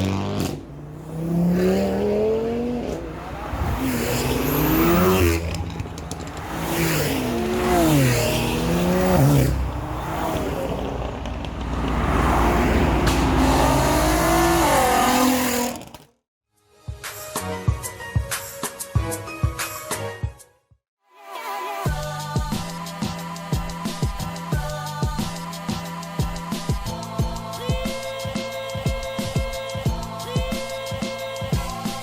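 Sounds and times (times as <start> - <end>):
car engines revving hard: 0.0 - 16.0.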